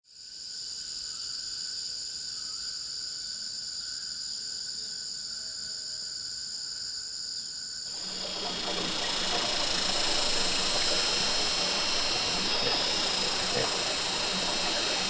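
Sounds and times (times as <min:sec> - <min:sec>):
insects trilling: 0:07.9 - 0:15.0.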